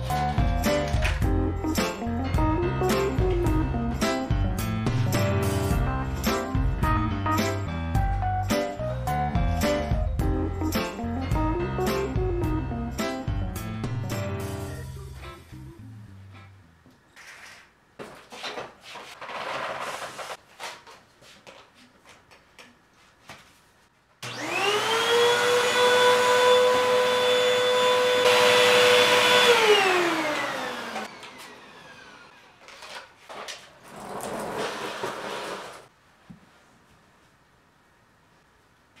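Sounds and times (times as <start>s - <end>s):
vacuum cleaner motor whine: 24.2s - 32.6s.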